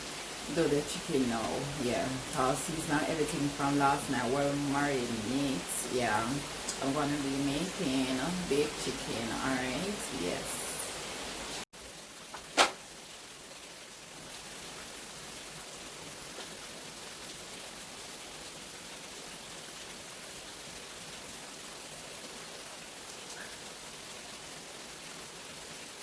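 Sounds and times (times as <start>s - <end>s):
rain falling: 0.0s - 26.0s
sharp knock: 12.6s - 12.8s.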